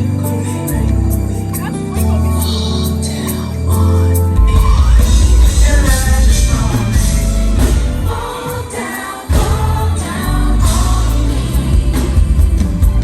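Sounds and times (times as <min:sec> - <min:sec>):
band with heavy bass: 0:00.0 - 0:13.0
female vocal group singing in harmony: 0:07.6 - 0:13.0.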